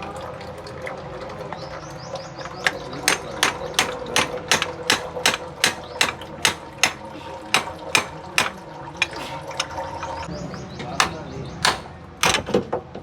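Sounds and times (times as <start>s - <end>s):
hammer blows: 2.7s - 9.2s, 11.0s - 12.4s.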